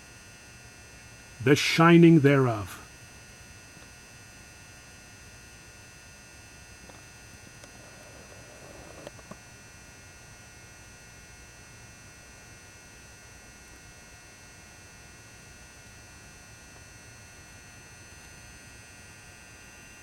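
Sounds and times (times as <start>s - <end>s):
faint mains hum: 0.0s - 20.0s.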